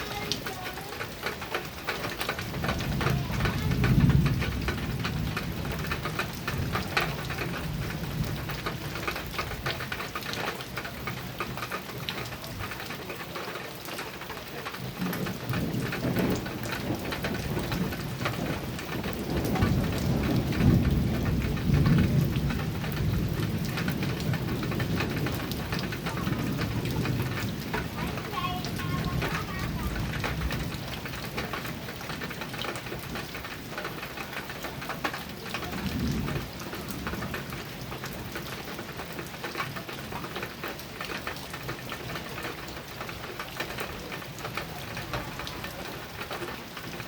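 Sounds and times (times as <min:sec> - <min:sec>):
heavy rain on a metal roof: 0:00.0 - 0:47.0
thunder rolling: 0:01.9 - 0:10.1, 0:14.8 - 0:38.6.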